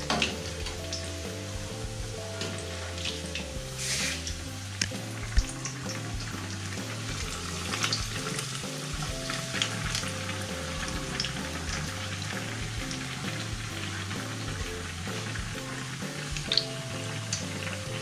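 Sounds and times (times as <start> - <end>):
metal utensils clicking on pan: 0.0 - 1.1
food deep-frying in hot oil: 0.0 - 18.0.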